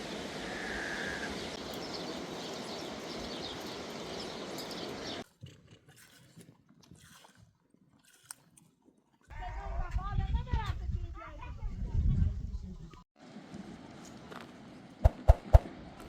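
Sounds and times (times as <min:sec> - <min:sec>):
outdoor rushing noise: 0:14.8 - 0:16.0.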